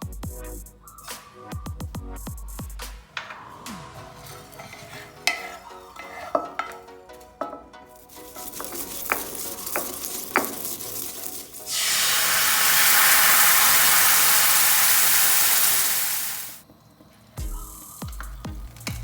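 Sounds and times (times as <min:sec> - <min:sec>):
spatula clinking on pan: 0:04.4 - 0:07.7
food sizzling in hot oil: 0:08.0 - 0:16.6.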